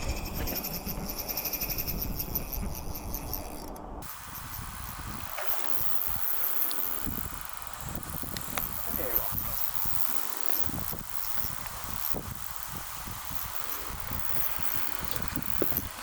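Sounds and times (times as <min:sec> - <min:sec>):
insects chirping: 0:00.0 - 0:16.0
faint high ticks: 0:05.2 - 0:08.9.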